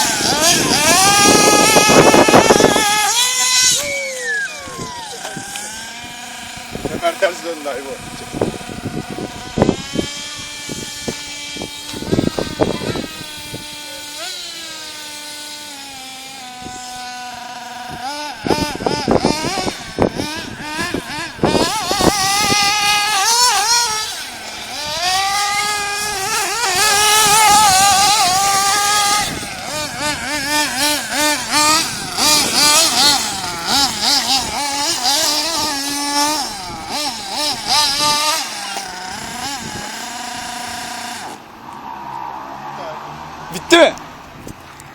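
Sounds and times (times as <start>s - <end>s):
small engine running high-pitched: 0.0s - 41.5s.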